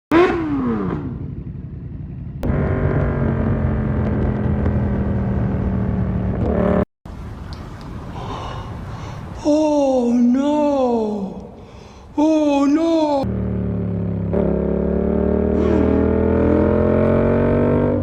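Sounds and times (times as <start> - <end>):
motorcycle engine revving: 0.1 - 6.9, 13.2 - 18.0.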